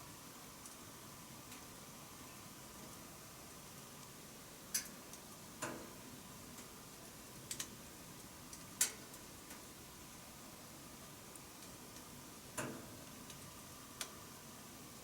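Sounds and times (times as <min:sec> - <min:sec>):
faint steady hiss: 0:00.0 - 0:15.0
wood stove fire crackling: 0:00.0 - 0:15.0.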